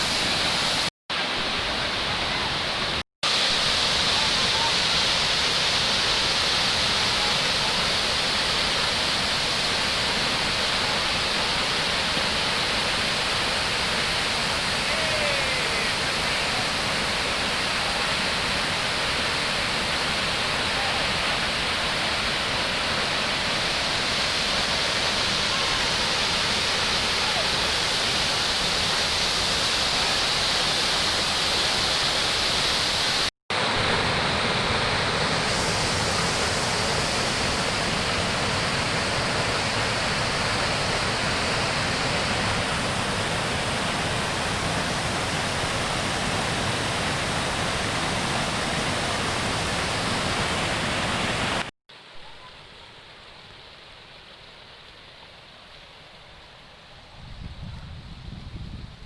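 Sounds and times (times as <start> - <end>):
waterfall rushing water: 0.0 - 57.2.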